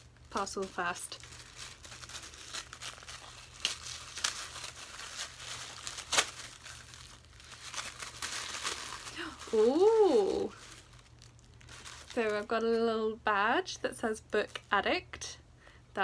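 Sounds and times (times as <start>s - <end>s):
wrapping paper torn and crinkled: 0.0s - 12.7s.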